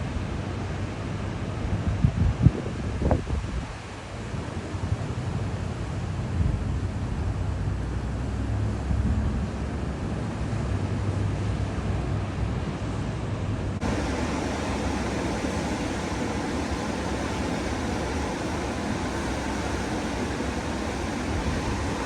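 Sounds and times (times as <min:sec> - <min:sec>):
wind on microphone: 0:01.7 - 0:03.8, 0:13.8 - 0:22.0
ocean surf: 0:13.8 - 0:22.0
steady bright hiss: 0:13.8 - 0:22.0.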